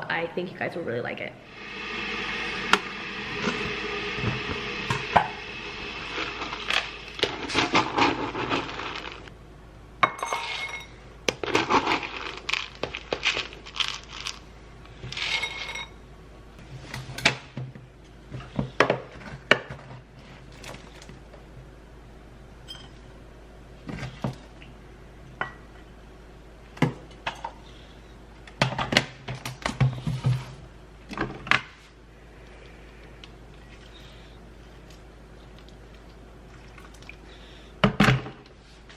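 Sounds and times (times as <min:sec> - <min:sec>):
steady humming: 0:00.0 - 0:10.2
dishes and utensils clinking: 0:10.0 - 0:11.0, 0:15.2 - 0:16.0.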